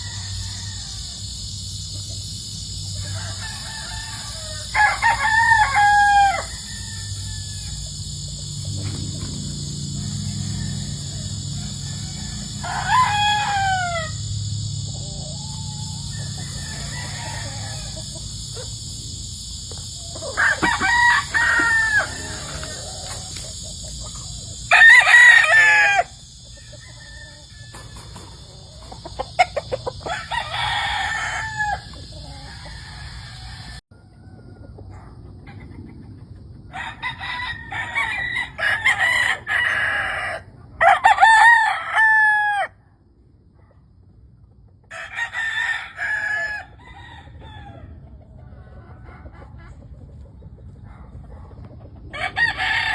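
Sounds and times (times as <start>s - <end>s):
steady high buzz: 0.0s - 33.8s
roosters crowing: 0.0s - 43.1s, 44.7s - 52.9s.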